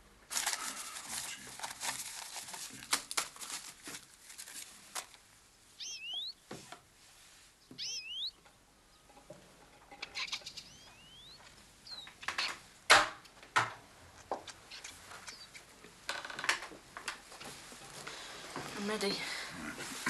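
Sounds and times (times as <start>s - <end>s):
bird calling: 5.8s - 6.4s, 7.7s - 9.2s, 9.9s - 12.6s, 14.6s - 15.7s.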